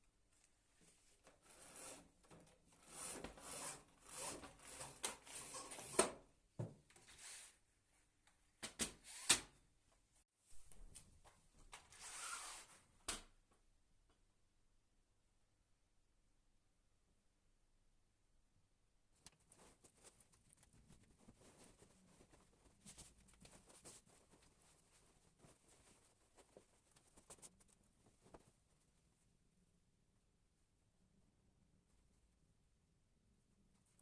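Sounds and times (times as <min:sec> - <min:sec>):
rustling and handling noises: 0:19.1 - 0:29.4.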